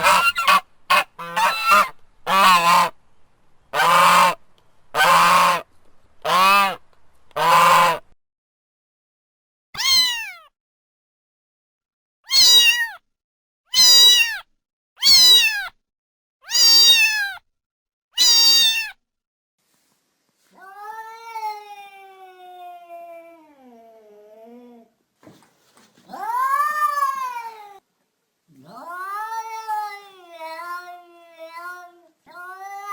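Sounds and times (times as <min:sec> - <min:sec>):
cat meowing: 0:09.8 - 0:10.5, 0:12.3 - 0:13.0, 0:13.8 - 0:14.4, 0:15.0 - 0:15.7, 0:16.5 - 0:17.4, 0:18.2 - 0:19.0, 0:20.6 - 0:24.9, 0:26.1 - 0:27.8, 0:28.6 - 0:32.9.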